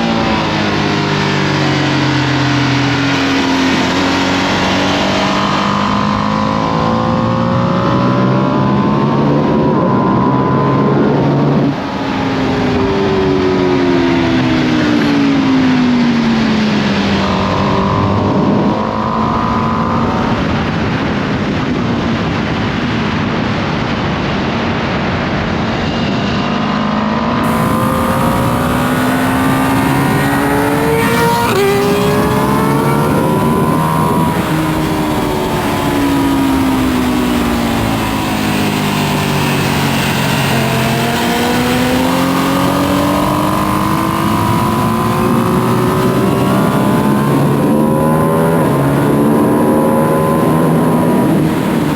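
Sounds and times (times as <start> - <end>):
motorcycle engine accelerating: 0.0 - 22.3, 26.9 - 51.9
wind rushing: 27.4 - 49.5.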